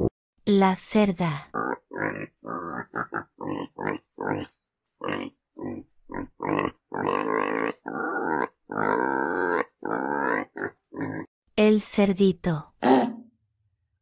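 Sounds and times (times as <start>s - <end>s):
pig grunting: 1.5s - 11.3s, 12.8s - 13.3s.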